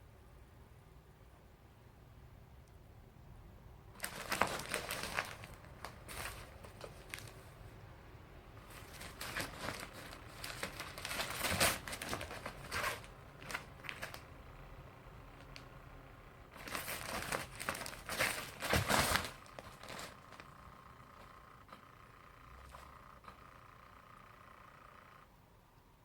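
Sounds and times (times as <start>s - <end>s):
crinkly rustling and scratching: 4.0s - 7.6s, 8.6s - 14.3s, 16.5s - 21.4s.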